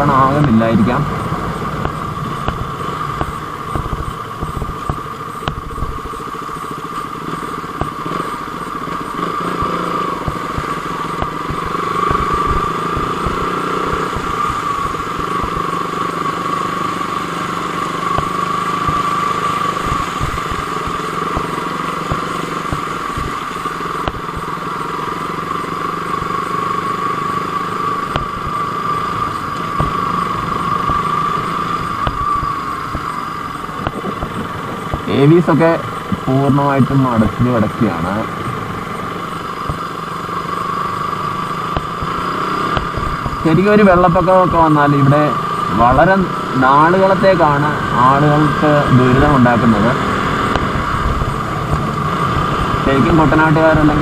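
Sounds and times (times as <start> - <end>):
wind buffeting microphone: 0.0 - 6.6, 19.7 - 24.5, 50.2 - 54.0
motorcycle engine whining: 0.0 - 54.0.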